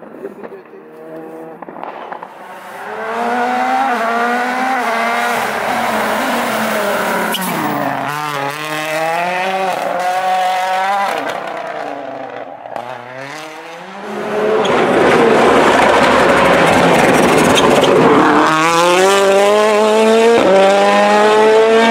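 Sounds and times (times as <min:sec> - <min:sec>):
rally car engine revving: 0:00.3 - 0:21.9
sharp crack: 0:01.6 - 0:02.5.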